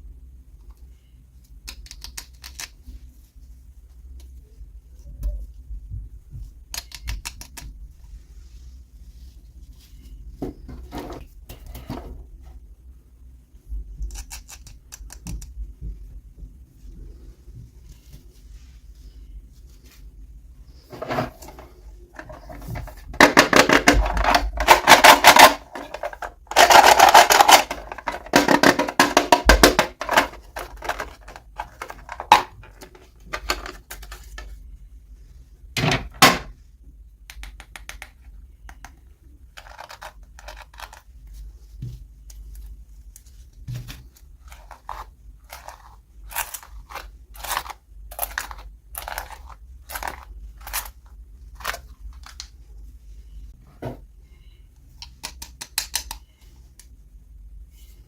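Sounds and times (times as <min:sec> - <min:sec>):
small rustles: 0:15.9 - 0:23.2.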